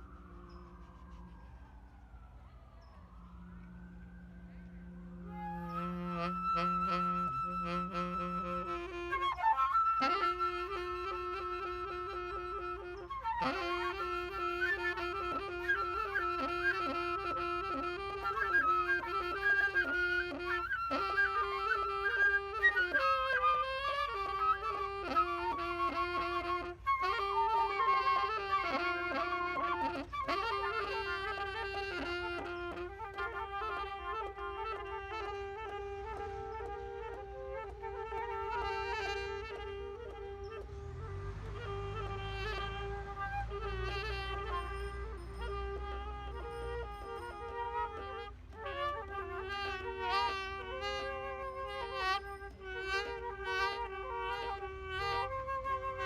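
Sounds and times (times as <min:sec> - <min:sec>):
instrumental melody: 0:00.0 - 0:56.0.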